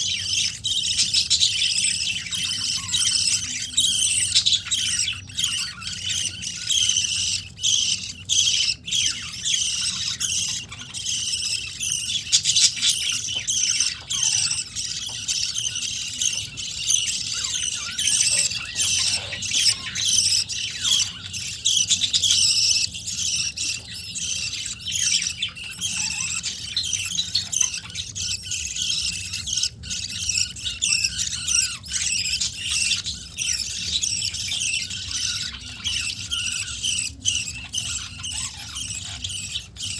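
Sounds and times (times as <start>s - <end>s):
budgerigars chirping and chattering: 0.0s - 39.9s
harsh bird squawks: 0.0s - 39.9s.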